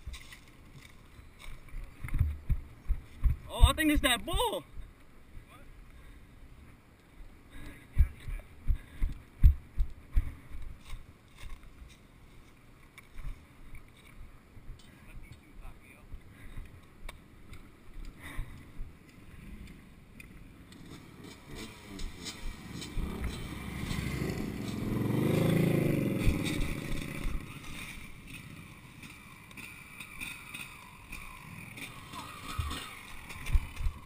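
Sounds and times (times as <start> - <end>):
vehicle engine passing by: 20.8 - 28.8.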